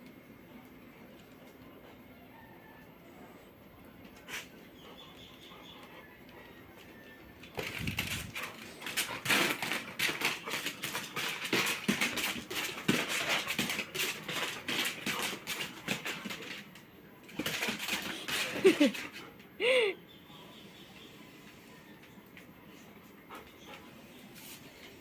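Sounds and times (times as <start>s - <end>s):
rapid clicking and scratching: 7.5s - 18.9s.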